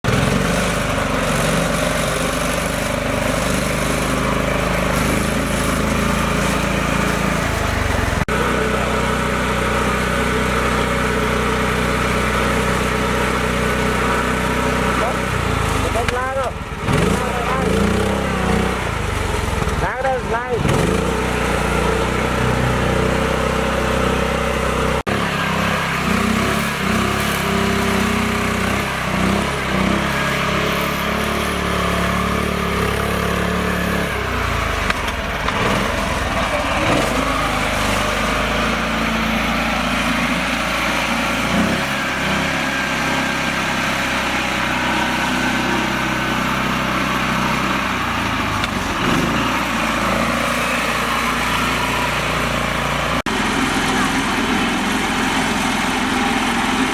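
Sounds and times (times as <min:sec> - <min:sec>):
tractor engine running: 0:00.0 - 0:56.9.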